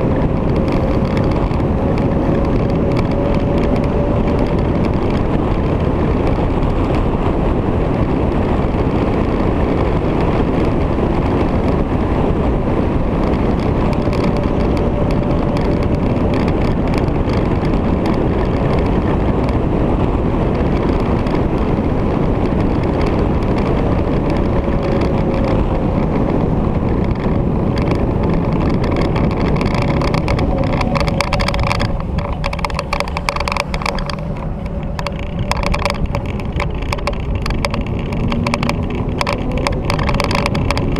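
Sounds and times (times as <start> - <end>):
motorcycle engine running: 0.0 - 40.9
wind rush on microphone: 0.0 - 40.9
faint shifting tone: 23.8 - 40.9.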